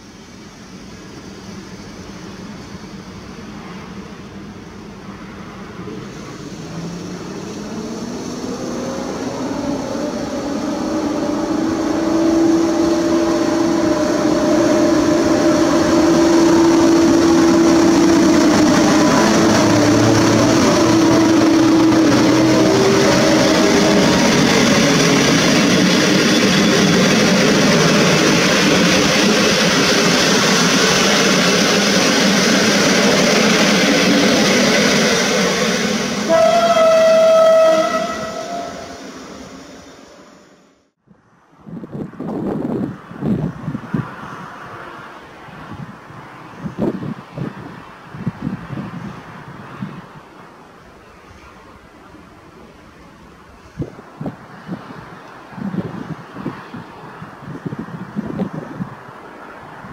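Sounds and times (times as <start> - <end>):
train coaches rolling past: 0.0 - 40.8, 41.6 - 59.9
locomotive motor whine: 6.4 - 40.8.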